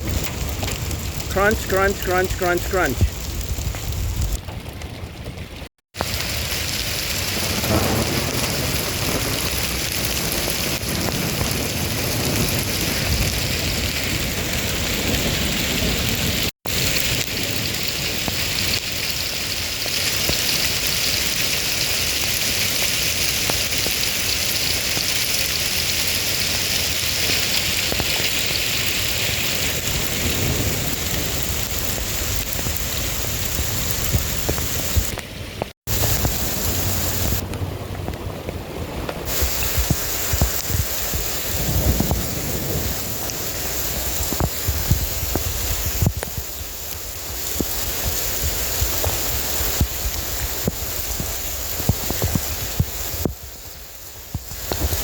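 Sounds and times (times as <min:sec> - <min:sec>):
heavy rain pouring: 0:00.0 - 0:55.0
low thunder rumbling: 0:02.9 - 0:18.8, 0:28.9 - 0:35.2, 0:35.9 - 0:46.9.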